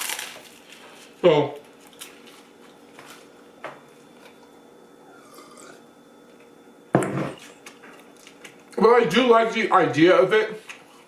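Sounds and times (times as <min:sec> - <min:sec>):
sandwich being chewed: 0:00.0 - 0:03.3.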